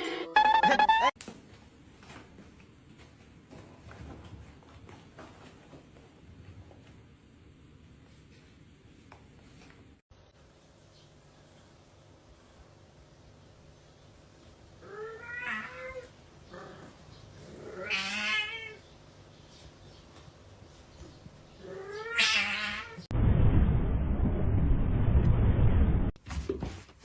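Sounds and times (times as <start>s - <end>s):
cat yowling: 14.8s - 16.1s, 17.7s - 18.8s, 21.7s - 23.0s
loud low rumbling: 23.1s - 26.2s.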